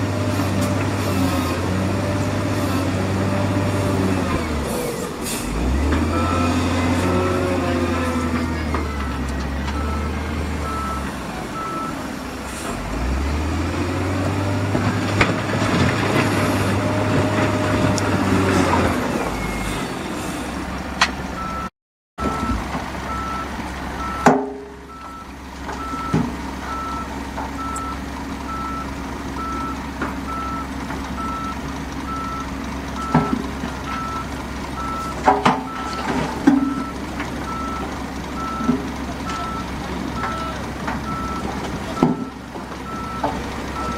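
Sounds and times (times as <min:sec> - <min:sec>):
diesel machinery drone: 0:00.0 - 0:43.9
reversing alarm beeping: 0:05.8 - 0:12.1, 0:21.4 - 0:43.9
metal clanks and knocks: 0:35.2 - 0:37.3.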